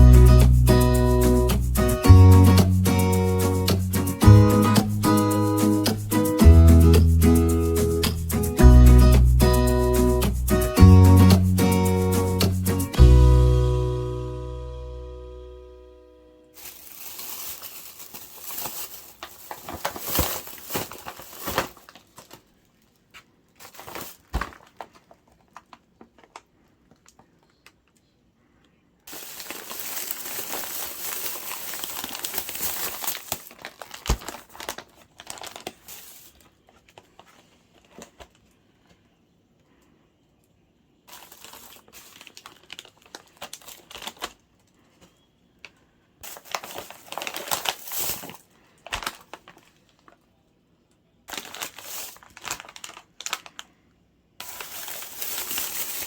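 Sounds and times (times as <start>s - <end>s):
plastic bags crinkling: 16.5s - 27.6s, 29.1s - 38.6s, 41.0s - 45.2s, 46.2s - 50.2s, 51.3s - 53.7s, 54.4s - 56.0s.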